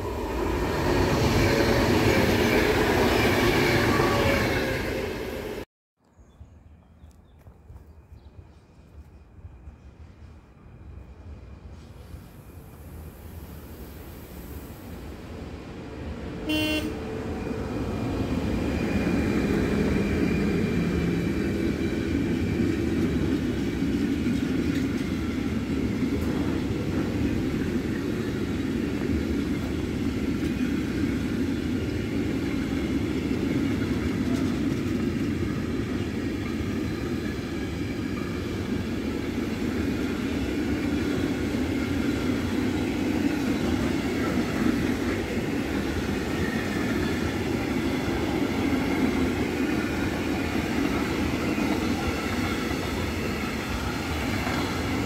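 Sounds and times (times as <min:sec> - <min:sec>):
train wheels rumbling on rails: 0:00.0 - 0:05.6, 0:14.9 - 0:55.0
locomotive horn blast: 0:16.4 - 0:17.2.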